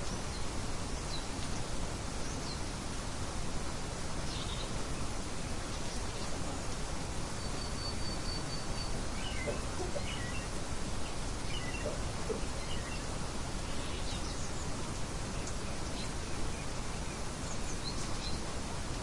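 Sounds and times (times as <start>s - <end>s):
rain hissing: 0.0s - 19.0s
songbirds chirping: 0.0s - 19.0s.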